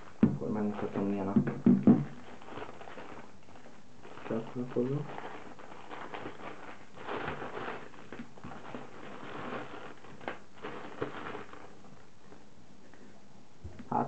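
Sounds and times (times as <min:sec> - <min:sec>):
cable handling rustle: 0:02.0 - 0:12.5.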